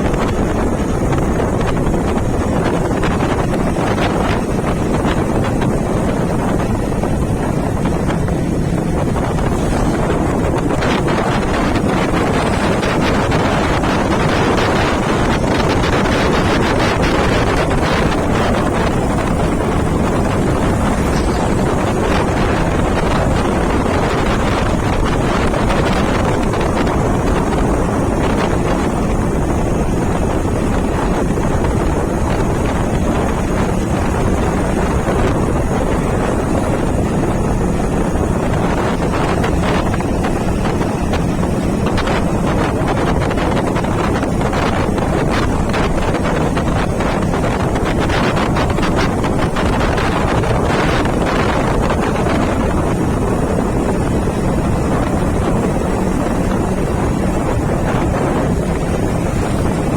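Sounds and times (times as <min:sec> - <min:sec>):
motorcycle engine hum: 0:00.0 - 0:59.9
wind buffeting microphone: 0:00.0 - 0:59.9.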